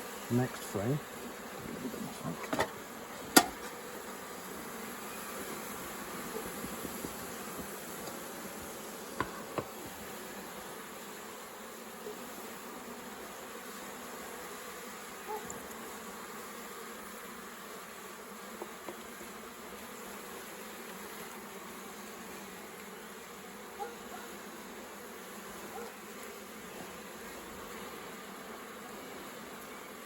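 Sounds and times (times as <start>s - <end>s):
honey bees buzzing: 0.0s - 30.0s
faint knocks of hive frames: 1.6s - 4.2s, 5.7s - 10.4s, 18.5s - 19.3s.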